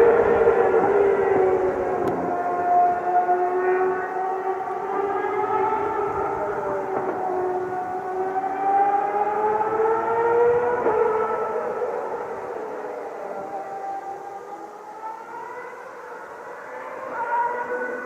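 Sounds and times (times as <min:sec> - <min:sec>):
race car engine at high revs: 0:00.0 - 0:18.0.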